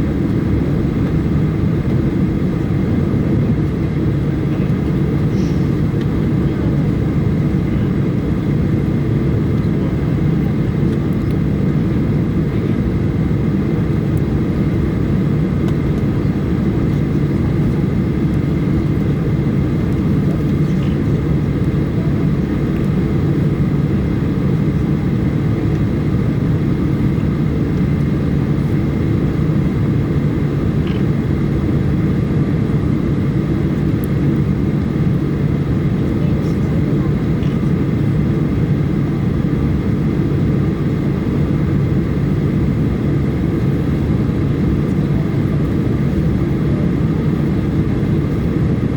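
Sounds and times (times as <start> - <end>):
airflow in cabin: 0.0 - 48.9
jet engine cabin drone: 0.0 - 48.9.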